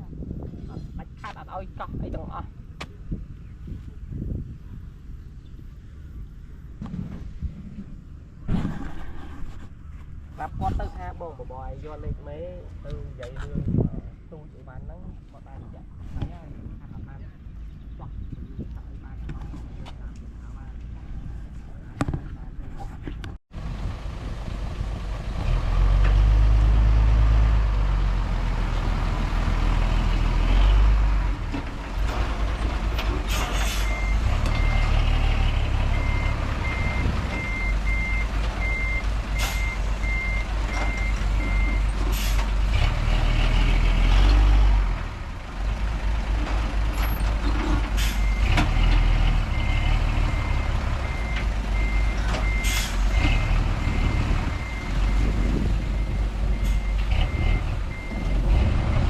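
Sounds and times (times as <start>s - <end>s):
heavy diesel machinery engines: 0.0s - 59.0s
reversing alarm beeping: 33.8s - 35.2s, 35.9s - 42.0s, 49.5s - 59.0s.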